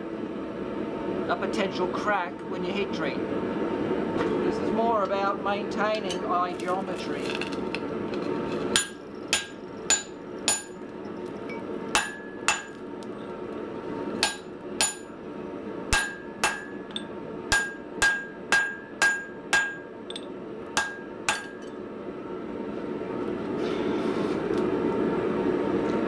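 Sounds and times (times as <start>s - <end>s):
hammer striking steel on anvil: 8.8s - 10.9s, 11.5s - 12.8s, 14.2s - 15.2s, 15.9s - 21.8s.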